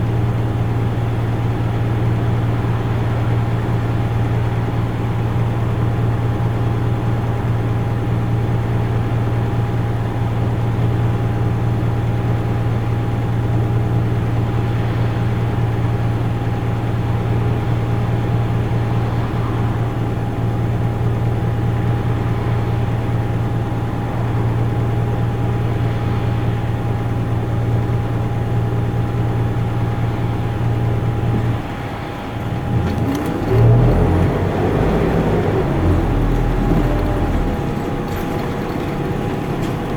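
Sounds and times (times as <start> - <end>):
bus engine running: 18.5 - 39.9.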